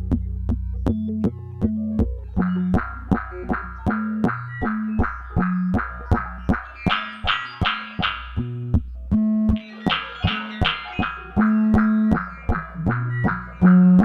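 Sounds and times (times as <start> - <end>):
held synthesizer bass note: 0.0 - 14.0
plucked synthesizer notes: 0.0 - 14.0.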